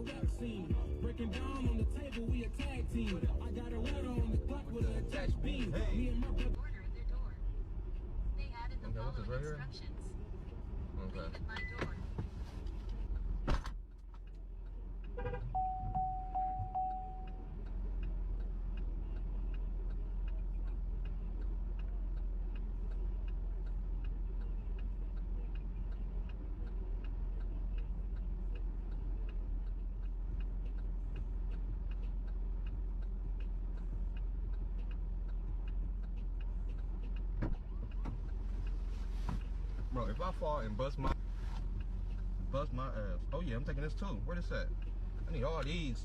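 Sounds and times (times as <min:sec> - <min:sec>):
idling engine hum: 0:00.0 - 0:46.0
car indicator relay ticking: 0:12.7 - 0:46.0
short beep: 0:15.6 - 0:17.5.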